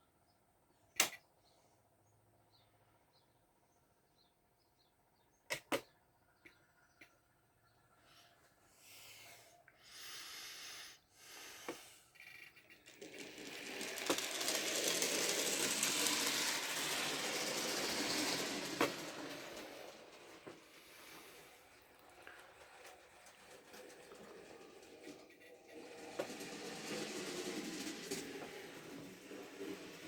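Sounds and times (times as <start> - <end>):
model train whirring rattle: 11.3 - 30.0.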